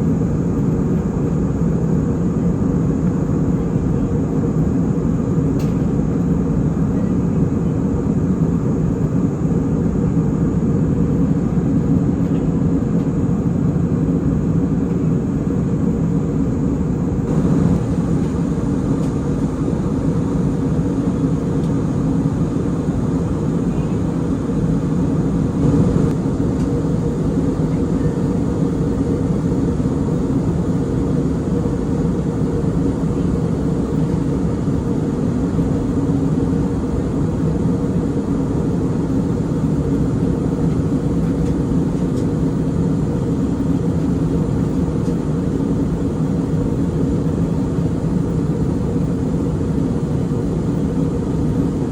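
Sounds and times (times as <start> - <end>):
airliner cabin engine drone: 0.0 - 51.9.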